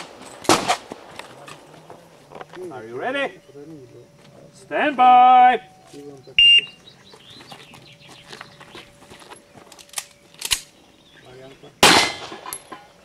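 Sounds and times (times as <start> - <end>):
handgun shot: 0.0 - 0.9, 11.8 - 12.6
quiet shuffling: 5.7 - 11.3.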